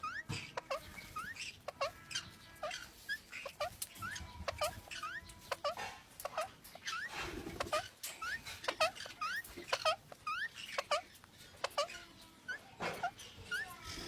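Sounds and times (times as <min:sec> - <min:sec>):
parrots chirping: 0:00.0 - 0:14.0
faint clicks: 0:03.6 - 0:06.8.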